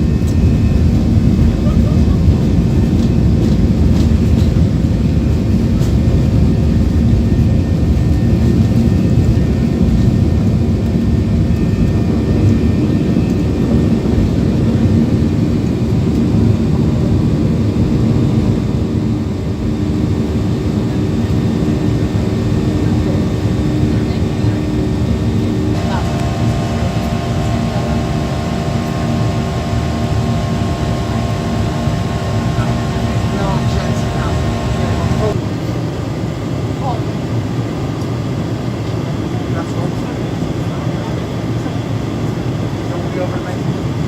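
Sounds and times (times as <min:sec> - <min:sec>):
jet engines roaring: 0:00.0 - 0:44.0
low hum: 0:17.8 - 0:35.5.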